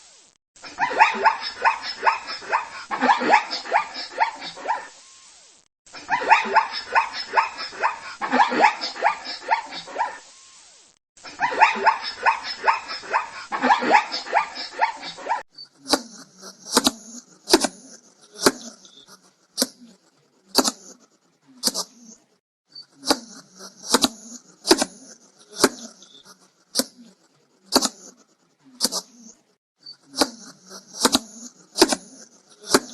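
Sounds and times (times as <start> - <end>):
dog barking rapidly: 0.8 - 5.0, 6.0 - 10.2, 11.3 - 15.4.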